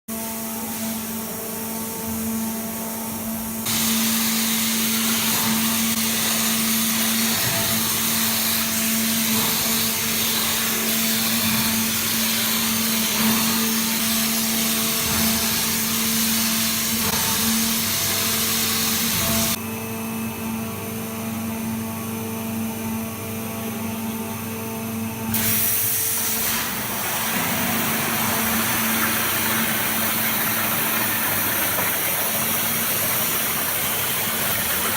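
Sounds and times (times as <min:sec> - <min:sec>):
high-pressure water jet hissing: 0:03.7 - 0:19.6.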